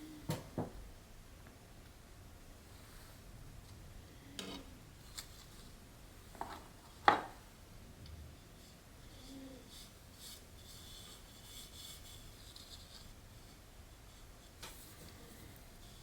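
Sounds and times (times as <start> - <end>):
soft rustling and scraping: 4.2 - 16.0.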